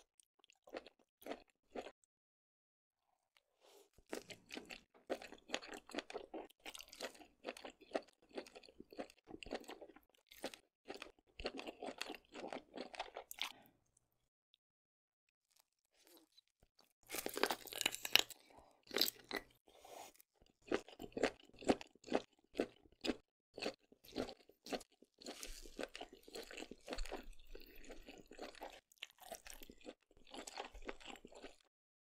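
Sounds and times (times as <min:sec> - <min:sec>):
biting and chewing food: 0:00.0 - 0:02.1, 0:03.4 - 0:14.1, 0:15.4 - 0:31.7.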